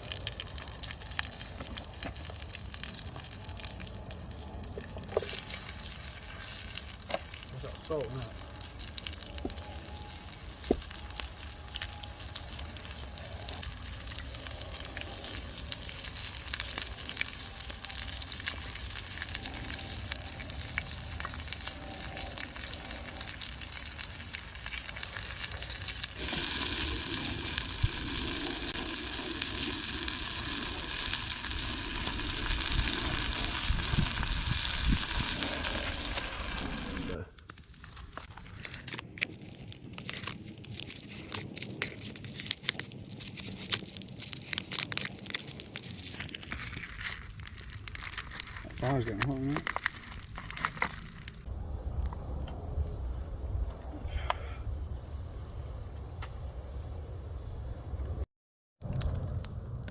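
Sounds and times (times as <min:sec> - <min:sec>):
food sizzling in a pan: 0:05.0 - 0:37.2.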